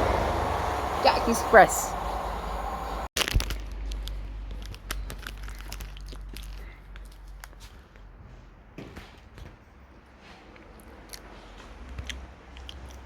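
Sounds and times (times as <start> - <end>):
low rumble: 0.0 - 5.3.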